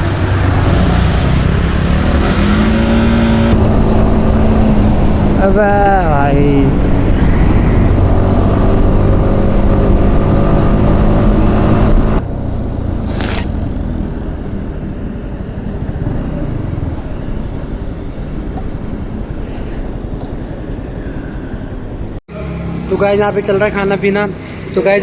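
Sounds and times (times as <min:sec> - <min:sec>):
motorcycle engine running: 0:00.0 - 0:19.3
brief hiss: 0:13.0 - 0:13.5.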